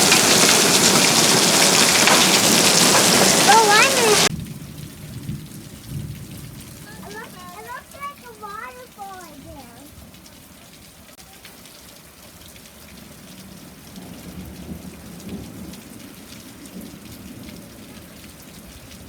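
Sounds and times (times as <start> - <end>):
hailstones striking surfaces: 0.0 - 4.4, 6.9 - 9.6
thunder rumbling: 0.0 - 9.6
steady rain: 0.0 - 19.0.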